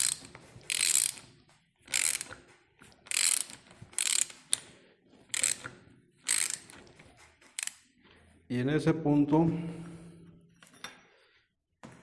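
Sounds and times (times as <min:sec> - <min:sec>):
ratchet wrench clicking: 0:00.0 - 0:01.3, 0:01.9 - 0:02.4, 0:03.1 - 0:04.7, 0:05.3 - 0:05.7, 0:06.3 - 0:06.8, 0:07.5 - 0:07.8.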